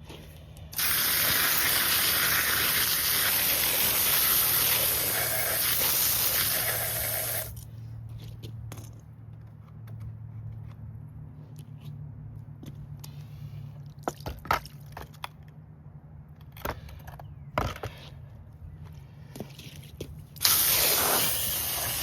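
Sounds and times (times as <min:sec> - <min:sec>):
water spray hissing: 0:00.8 - 0:07.6, 0:20.4 - 0:22.0.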